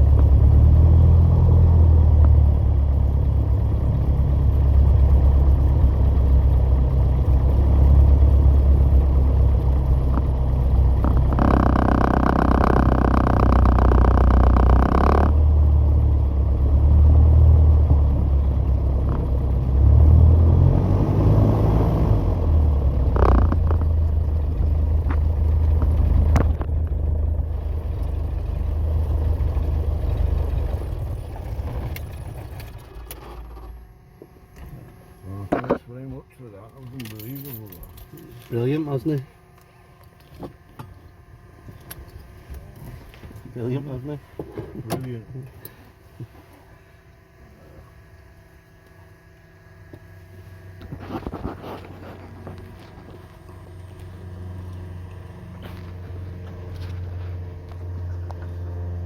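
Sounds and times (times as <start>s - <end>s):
light aircraft engine rumbling: 0.0s - 59.0s
higher buzzing sound: 10.0s - 15.6s.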